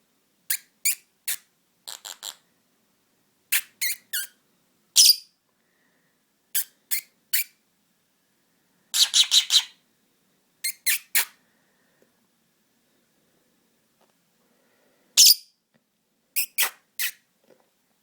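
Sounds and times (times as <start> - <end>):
lovebird squeaking: 0.5 - 2.4, 3.5 - 4.4, 5.0 - 5.3, 6.6 - 7.5, 9.0 - 9.8, 10.6 - 11.3, 15.2 - 15.5, 16.4 - 17.2.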